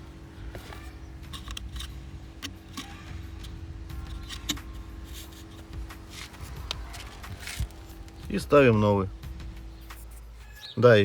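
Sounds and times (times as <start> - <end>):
steady low hum: 0.0 - 11.0
light clicks and knocks of handling: 0.4 - 8.6.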